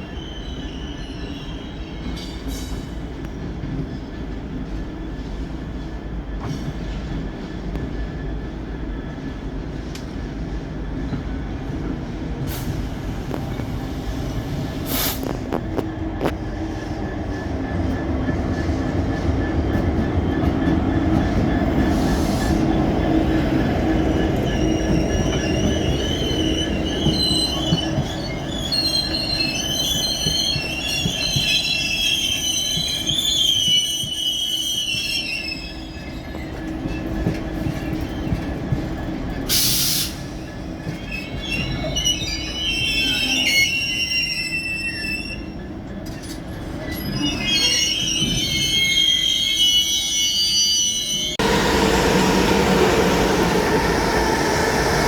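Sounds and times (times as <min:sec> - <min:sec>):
train wheels squealing: 0:00.0 - 0:15.5, 0:16.2 - 0:55.0
train rumbling past: 0:00.8 - 0:33.8, 0:51.0 - 0:55.0.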